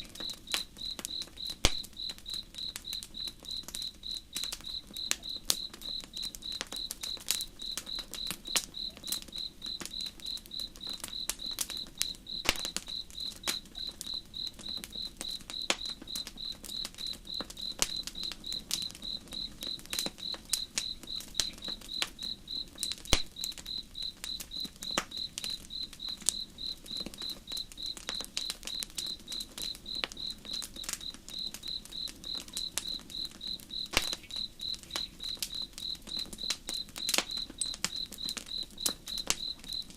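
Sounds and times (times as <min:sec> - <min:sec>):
campfire crackling: 0:00.0 - 0:39.9
cricket chirping: 0:00.0 - 0:39.9.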